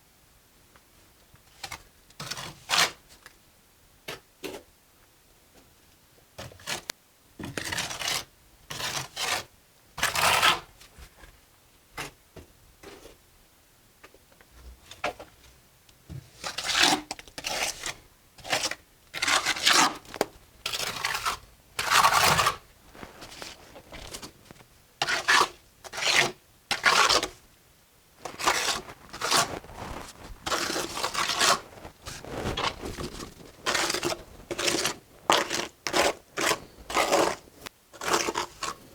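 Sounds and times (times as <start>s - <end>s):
trowel scraping mortar on brick: 16.5s - 24.4s, 25.0s - 27.4s, 28.2s - 38.9s.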